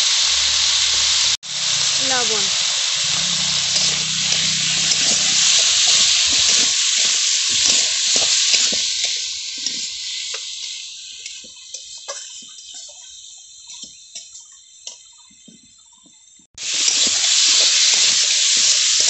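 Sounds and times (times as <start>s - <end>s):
potatoes sizzling in hot oil: 0.0s - 19.0s
steel spoon scraping pan: 1.6s - 13.0s.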